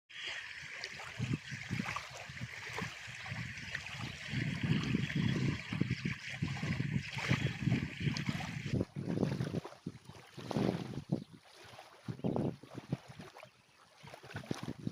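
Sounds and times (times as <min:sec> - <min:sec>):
water hissing along shore: 0:00.1 - 0:08.8
wind buffeting microphone: 0:00.4 - 0:13.3, 0:14.2 - 0:14.9.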